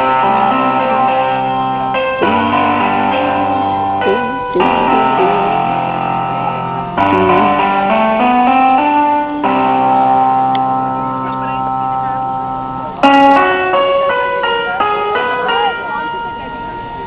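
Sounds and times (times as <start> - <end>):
electronic keyboard piano melody: 0.0 - 17.0.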